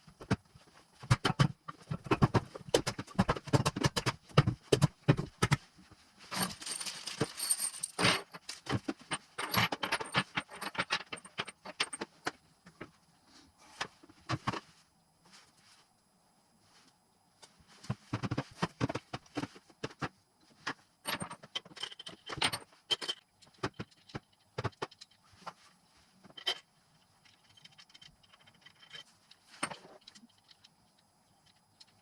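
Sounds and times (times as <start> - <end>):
metal tools clinking: 6.3 - 12.0.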